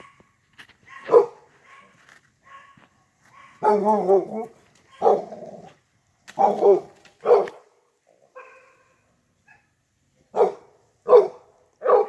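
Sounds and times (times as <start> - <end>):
dog barking: 0.0 - 0.3, 0.9 - 5.5, 6.4 - 7.7, 8.3 - 8.9, 10.4 - 12.0.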